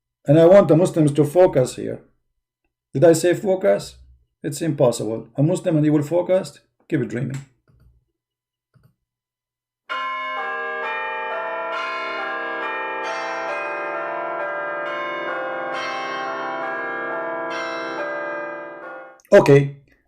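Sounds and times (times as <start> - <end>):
bells ringing: 9.9 - 19.2.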